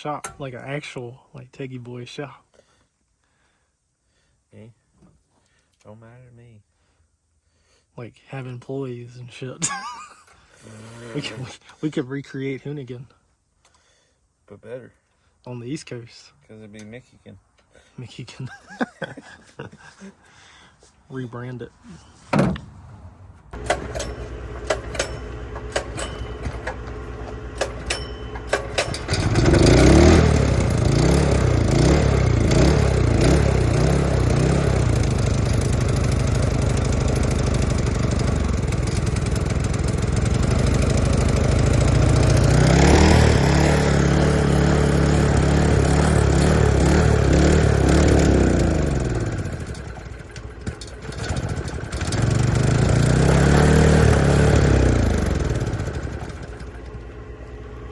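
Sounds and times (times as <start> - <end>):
engine running and revving: 23.6 - 57.0
light engine ticking: 23.6 - 57.2.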